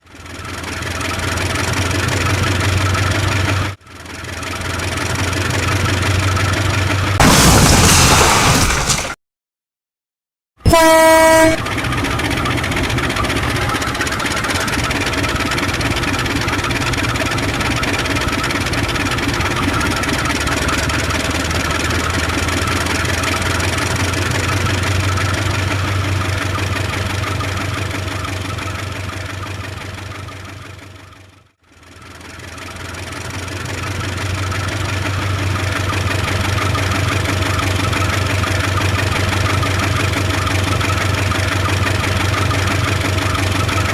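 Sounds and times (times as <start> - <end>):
locomotive engine running: 0.0 - 7.7, 10.6 - 43.9
train horn toot: 10.7 - 11.7.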